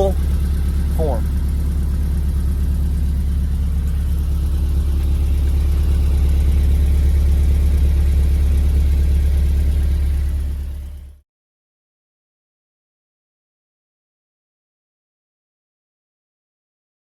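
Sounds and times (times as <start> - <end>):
car engine idling: 0.0 - 11.2.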